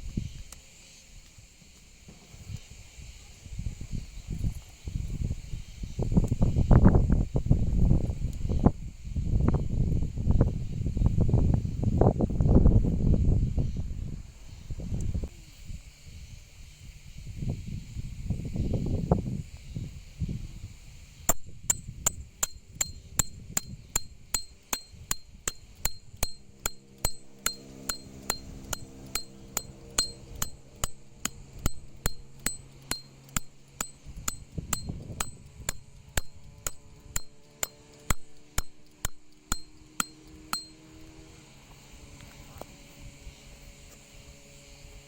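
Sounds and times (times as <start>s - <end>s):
hammer striking metal tent peg: 21.3s - 41.0s.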